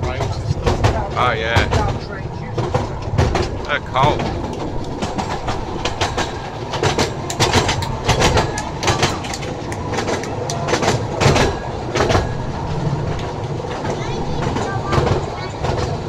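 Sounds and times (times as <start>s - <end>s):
small train rumbling on track: 0.0s - 16.0s
wheels clacking and rattling: 0.0s - 16.0s.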